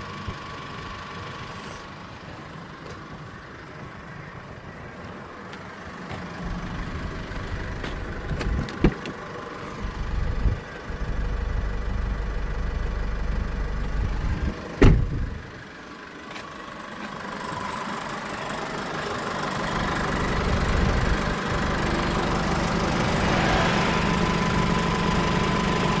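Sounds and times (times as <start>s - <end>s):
diesel engine running: 6.3s - 26.0s.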